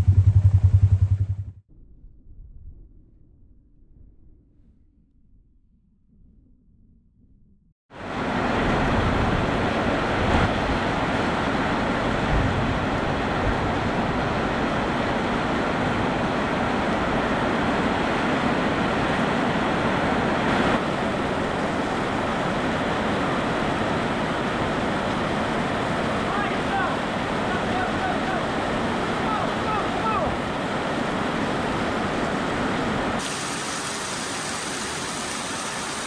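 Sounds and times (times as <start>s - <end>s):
heavy rain hissing: 33.1s - 36.0s.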